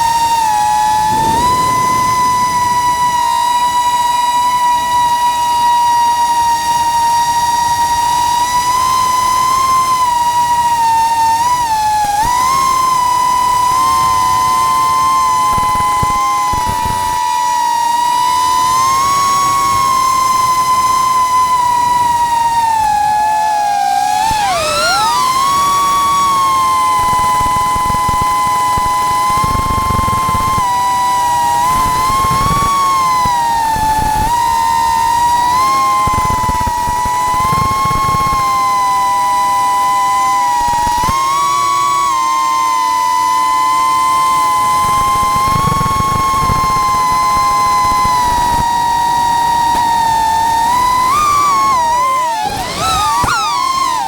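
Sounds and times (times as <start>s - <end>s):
drone motors whining: 0.0s - 54.0s.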